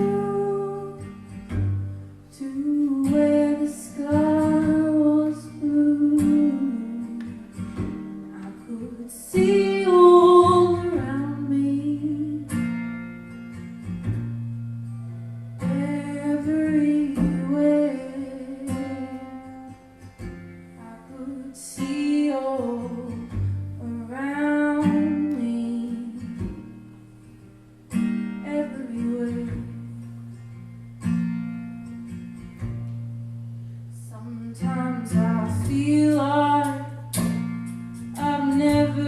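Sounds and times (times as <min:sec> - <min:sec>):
woman singing: 0:00.0 - 0:12.8, 0:15.4 - 0:20.0, 0:20.7 - 0:27.0, 0:28.3 - 0:30.4, 0:33.8 - 0:39.0
acoustic guitar strumming: 0:00.0 - 0:39.0.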